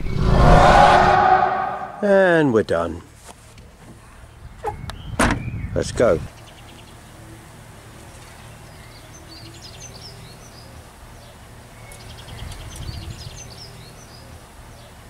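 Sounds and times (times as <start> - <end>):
steady low rumble: 0.0 - 2.3
small birds chirping: 4.0 - 15.0.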